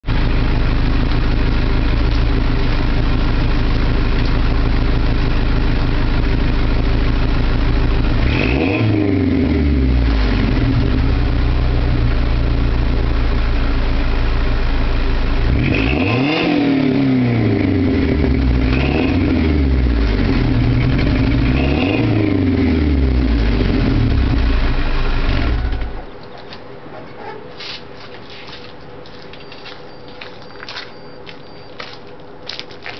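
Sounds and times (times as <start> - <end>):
truck engine idling and revving: 0.0 - 26.9.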